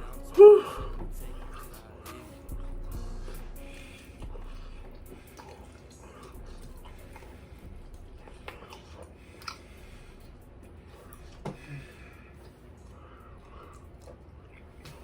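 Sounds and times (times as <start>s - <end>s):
low steady hum: 0.0s - 15.0s
wet chewing and lip smacks: 4.0s - 11.5s, 12.2s - 15.0s.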